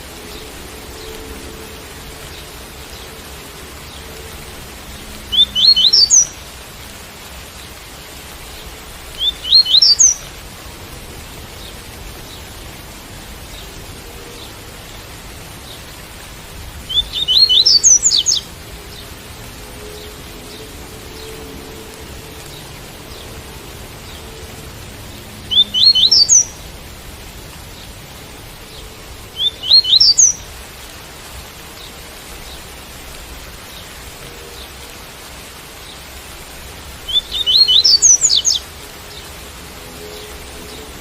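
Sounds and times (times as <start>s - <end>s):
rain hiss: 0.0s - 41.0s
bird singing rising notes: 5.0s - 6.4s, 9.1s - 10.2s, 16.8s - 19.0s, 25.5s - 26.6s, 29.4s - 30.4s, 37.1s - 39.2s.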